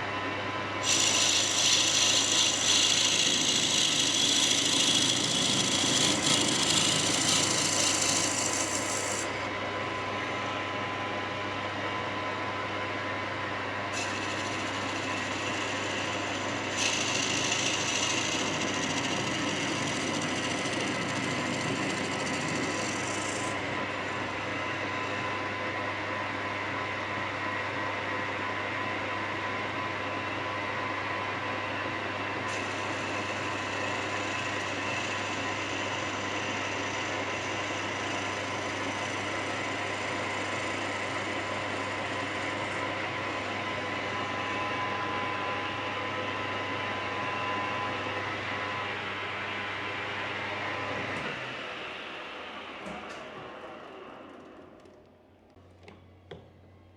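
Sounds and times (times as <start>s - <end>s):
tool scraping turning wood: 0.8s - 9.5s, 13.9s - 25.3s, 32.4s - 43.5s
machine motor whining: 0.8s - 9.6s, 13.9s - 25.3s.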